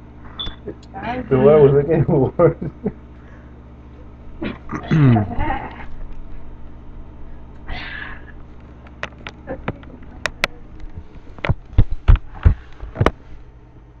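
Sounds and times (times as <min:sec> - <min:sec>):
faint steady hum: 0:00.0 - 0:14.0
sharp clicks and knocks: 0:08.8 - 0:13.2.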